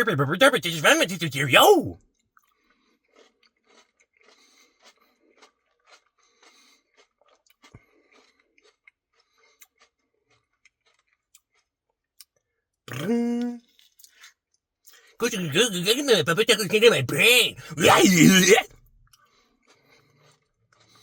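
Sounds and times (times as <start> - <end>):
chewing ice cream: 0.0 - 14.1, 15.2 - 18.7.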